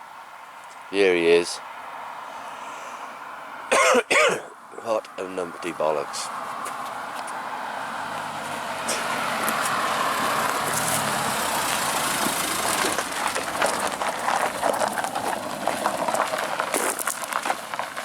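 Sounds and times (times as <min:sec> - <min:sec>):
car engine running: 0:08.0 - 0:18.0
tyre noise: 0:08.0 - 0:18.0.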